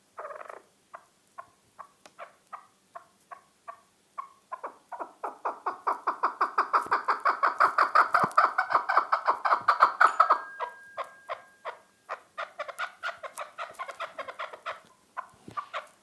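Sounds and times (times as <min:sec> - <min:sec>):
partridge clucking calls: 0:00.2 - 0:16.0.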